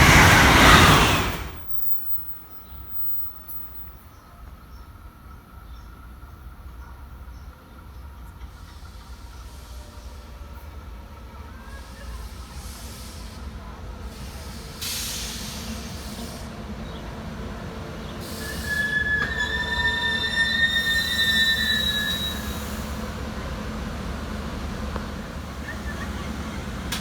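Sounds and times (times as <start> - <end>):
train rumbling on track: 0.0 - 27.0
train wheels squealing on rails: 0.0 - 27.0
brief hiss: 12.0 - 16.6.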